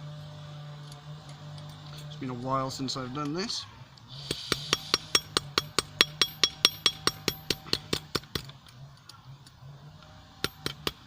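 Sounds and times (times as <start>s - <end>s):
hammer ringing on anvil: 4.7s - 7.8s.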